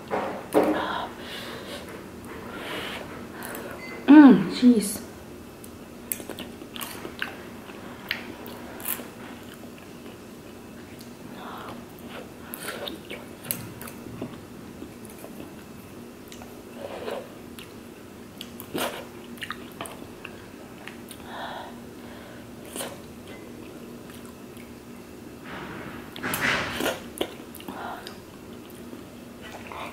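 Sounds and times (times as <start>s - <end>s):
faint steady hum: 0.0s - 29.9s
chewing and mouth sounds: 5.6s - 21.3s, 22.6s - 24.8s.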